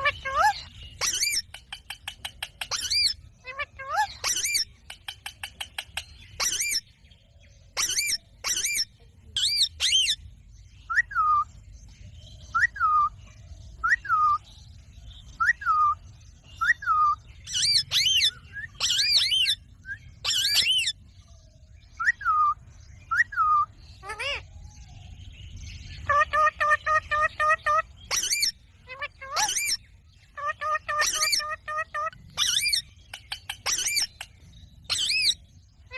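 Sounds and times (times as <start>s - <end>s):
parrot screeching: 0.0s - 1.4s, 2.7s - 4.6s, 6.4s - 6.8s, 23.5s - 24.4s, 26.1s - 29.8s, 30.4s - 32.8s, 33.6s - 34.1s.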